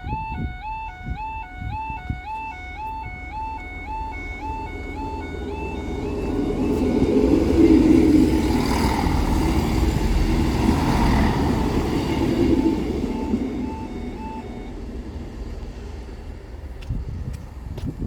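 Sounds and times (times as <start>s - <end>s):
crossing alarm short beeps: 0.0s - 8.8s, 11.0s - 15.3s
train rumbling over crossing: 0.0s - 18.0s.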